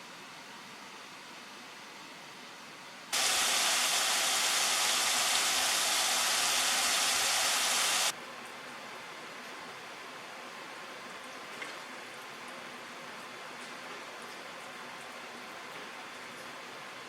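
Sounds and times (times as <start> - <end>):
loud rushing hiss: 3.2 - 8.1.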